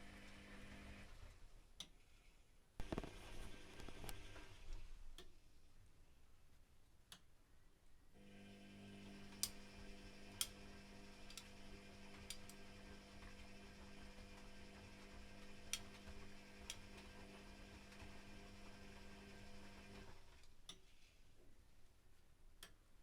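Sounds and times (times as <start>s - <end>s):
washing machine drum humming: 8.4s - 20.1s.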